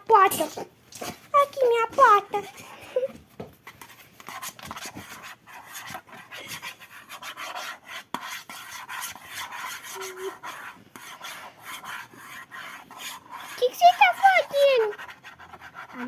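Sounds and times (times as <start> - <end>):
pen scratching on paper: 3.6 - 16.0.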